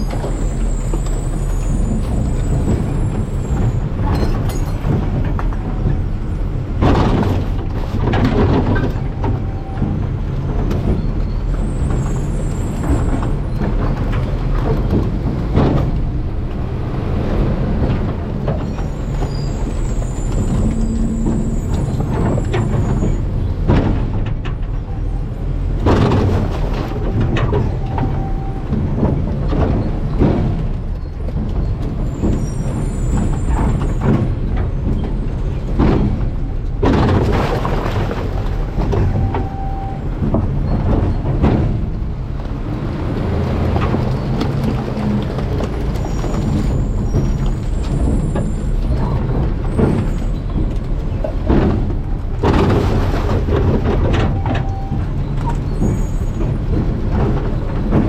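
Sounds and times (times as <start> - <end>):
heavy metallic clanks: 0.0 - 42.4
diesel engine rumbling: 0.0 - 58.0
truck body rattling: 0.0 - 58.0.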